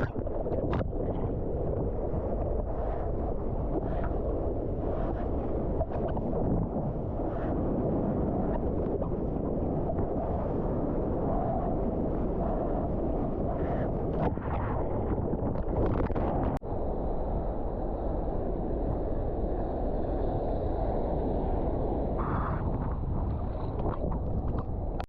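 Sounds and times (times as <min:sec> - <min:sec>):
ocean surf rumble: 0:00.0 - 0:25.0
wind buffeting microphone: 0:00.0 - 0:25.0.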